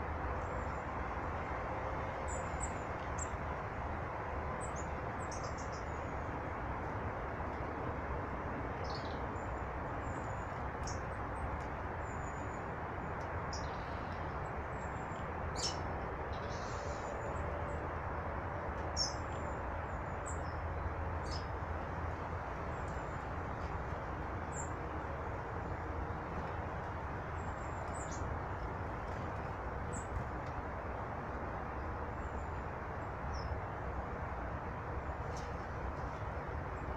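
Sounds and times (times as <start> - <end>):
small birds chirping: 4.6 - 6.2, 8.8 - 17.4, 18.8 - 21.6, 22.6 - 24.8, 27.3 - 30.3.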